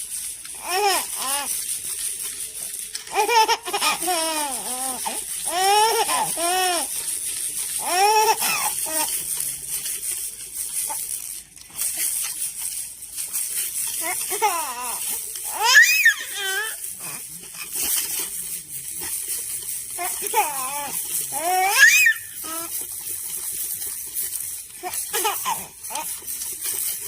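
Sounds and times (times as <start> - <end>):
baby squealing and cooing: 3.1 - 7.0, 7.8 - 9.2, 14.0 - 17.2, 20.0 - 22.7, 24.8 - 26.1.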